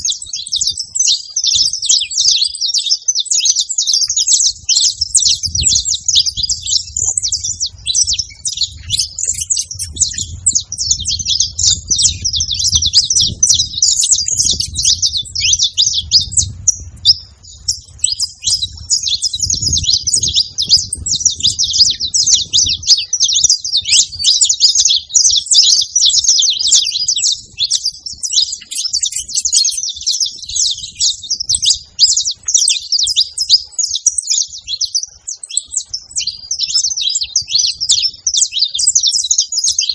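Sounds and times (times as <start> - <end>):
bird high chirps and trills: 0.0 - 39.9
low rumble: 5.0 - 22.3.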